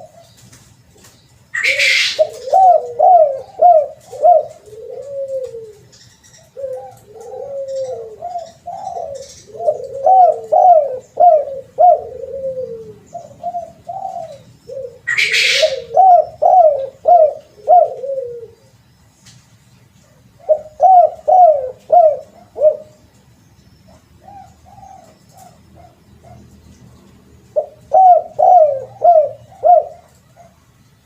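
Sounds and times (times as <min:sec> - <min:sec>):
dove cooing: 0:00.0 - 0:00.4, 0:01.5 - 0:18.8, 0:20.0 - 0:23.1, 0:23.9 - 0:26.6, 0:27.5 - 0:30.7.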